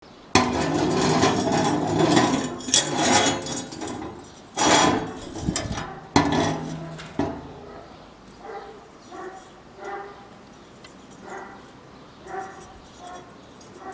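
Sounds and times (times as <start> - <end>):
metal clanks with ringing: 0.4 - 8.0.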